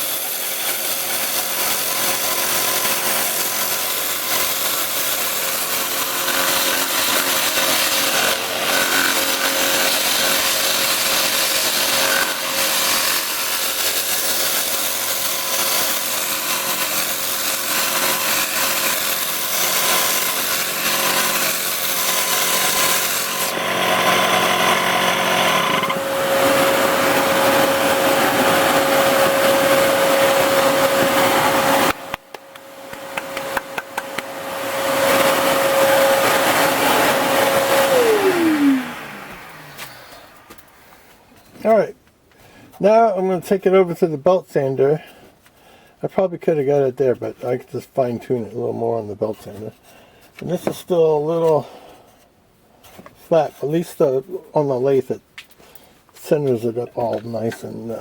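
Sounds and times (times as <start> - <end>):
lathe humming: 0.0 - 40.6
tool scraping spinning wood: 0.0 - 41.8, 48.4 - 55.1.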